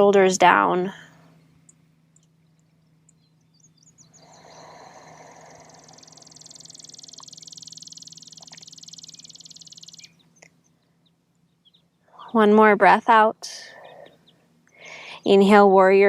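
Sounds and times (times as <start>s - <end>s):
low steady hum: 0.0s - 16.0s
animal pulsing trill: 1.6s - 10.3s.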